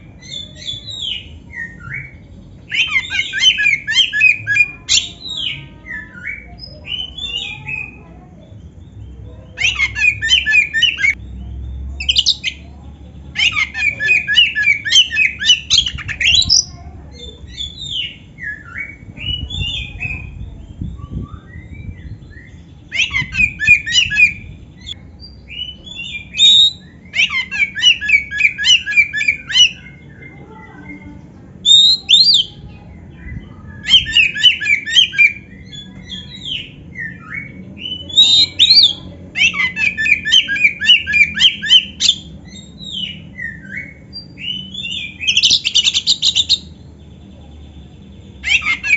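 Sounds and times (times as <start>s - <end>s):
whistled bird notes: 13.4s - 48.9s.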